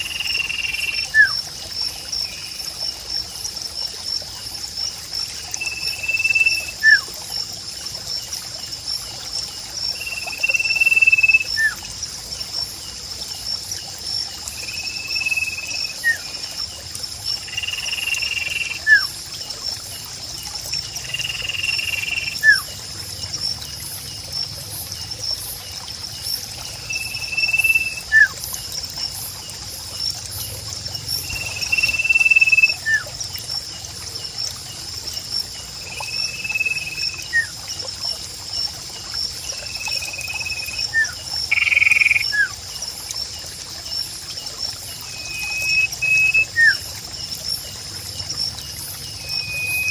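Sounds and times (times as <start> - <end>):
insect chorus: 0.0 - 49.9
trickling water: 0.0 - 49.9
bird whistling call: 45.1 - 46.8, 49.2 - 49.9.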